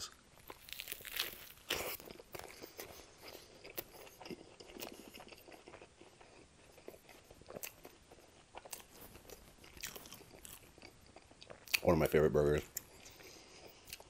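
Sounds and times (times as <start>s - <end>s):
man chewing food: 0.0s - 12.0s, 12.6s - 14.0s.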